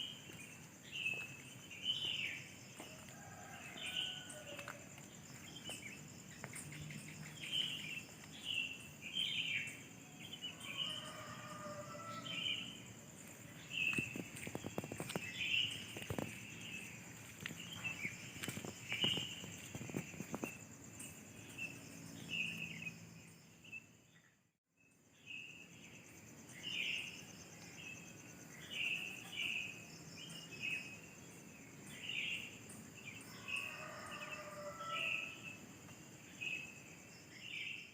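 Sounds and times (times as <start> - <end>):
insects trilling: 0.0 - 37.9
short insect chirps: 3.1 - 23.9.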